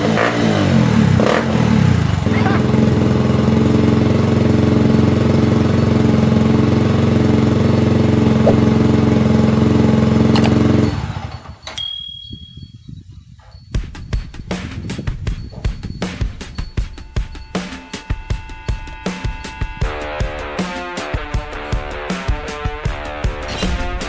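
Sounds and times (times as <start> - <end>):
motorcycle engine running: 0.0 - 11.6
music with a regular beat: 13.6 - 24.0.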